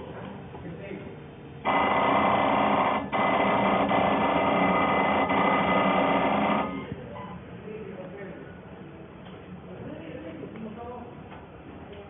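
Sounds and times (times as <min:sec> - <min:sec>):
machine whine: 0:01.6 - 0:07.0.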